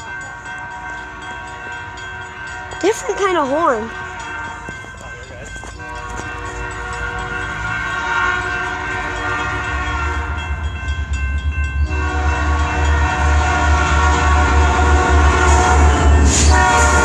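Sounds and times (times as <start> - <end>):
low rumble of train: 0.0 - 17.0
train air horn blowing: 5.8 - 10.5, 11.9 - 17.0.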